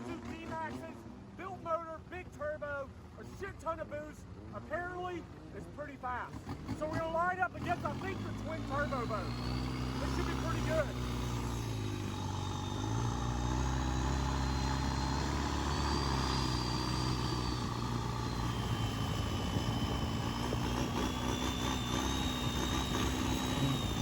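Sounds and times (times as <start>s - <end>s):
boat diesel engine running: 6.5s - 24.0s.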